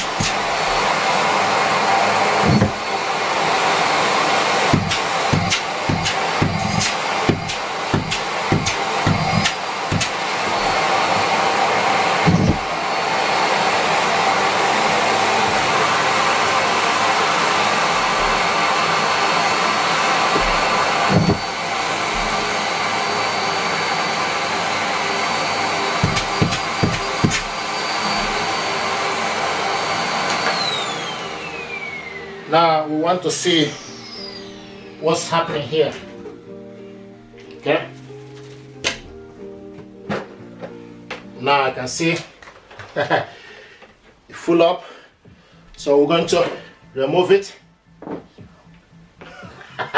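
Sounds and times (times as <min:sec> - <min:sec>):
vacuum cleaner high whine: 0:00.0 - 0:37.9, 0:40.1 - 0:43.3, 0:44.3 - 0:47.6.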